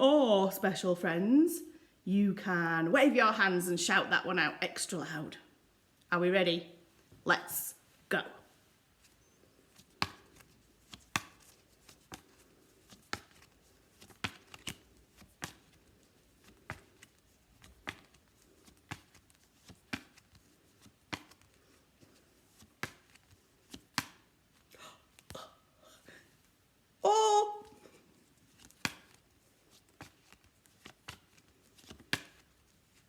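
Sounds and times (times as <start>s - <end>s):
faint soft sounds: 5.4s - 33.0s
flashcards tapping and flicking: 9.0s - 25.4s, 27.8s - 33.0s.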